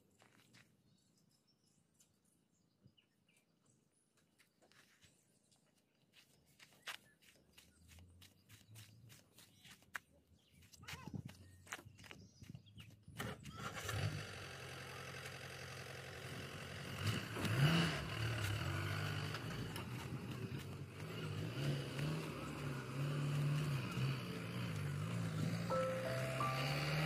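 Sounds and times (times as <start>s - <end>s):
diesel engine of earth-moving machinery: 13.1s - 27.0s.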